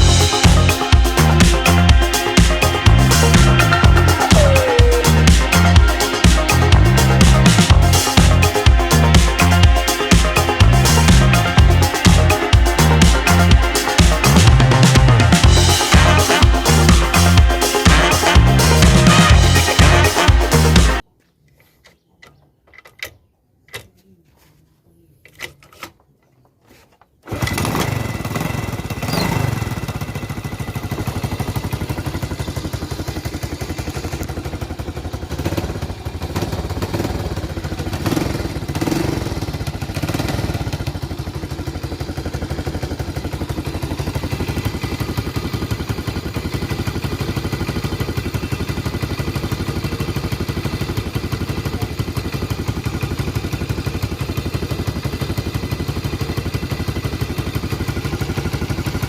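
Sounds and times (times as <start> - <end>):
motorcycle engine starting and idling: 0.0 - 21.0, 27.2 - 59.0.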